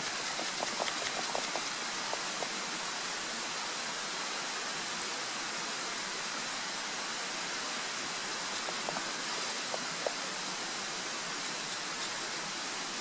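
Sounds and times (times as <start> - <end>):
faint ticks: 8.6 - 10.2.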